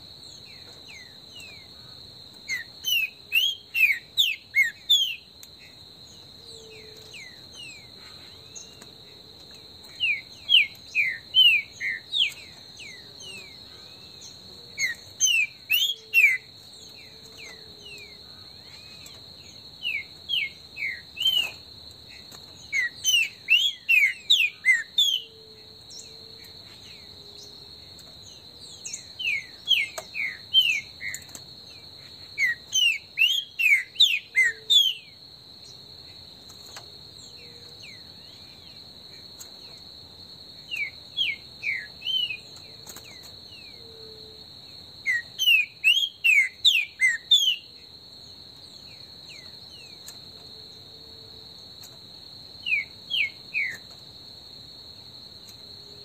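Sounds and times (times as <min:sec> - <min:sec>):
high insect buzz: 0:00.0 - 0:56.0
bird singing whistles: 0:02.5 - 0:05.3, 0:10.0 - 0:13.0, 0:14.8 - 0:16.5, 0:19.8 - 0:21.6, 0:22.7 - 0:25.4, 0:28.9 - 0:31.2, 0:32.4 - 0:35.1, 0:45.1 - 0:47.7.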